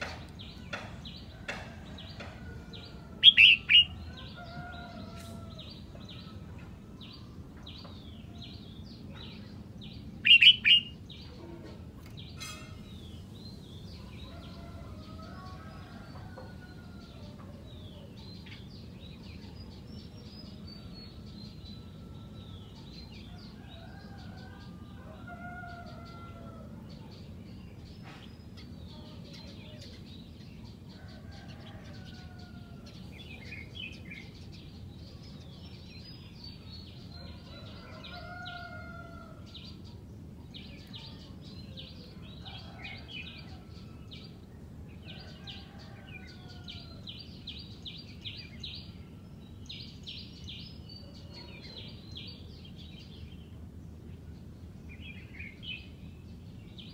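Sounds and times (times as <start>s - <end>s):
birds singing warbled phrases: 0.0s - 5.0s, 7.0s - 25.0s
low background noise: 0.0s - 56.9s.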